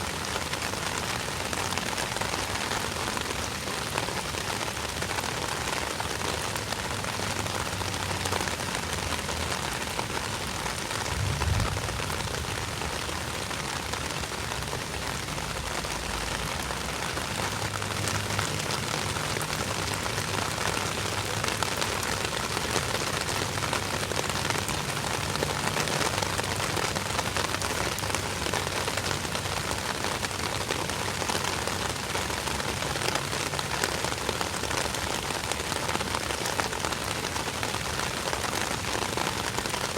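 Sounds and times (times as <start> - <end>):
rain pattering: 0.0 - 39.9
low rumble: 11.0 - 13.0.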